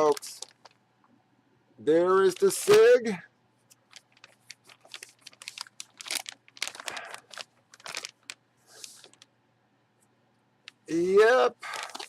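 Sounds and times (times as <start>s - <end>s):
plastic packaging crinkling: 0.0s - 0.8s, 2.2s - 3.1s, 3.7s - 9.3s, 11.6s - 12.0s.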